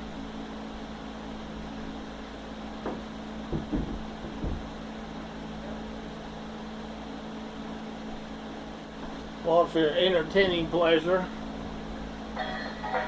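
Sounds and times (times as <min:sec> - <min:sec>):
steady mechanical hum: 0:00.0 - 0:13.0
short knocks and bumps: 0:02.8 - 0:04.8.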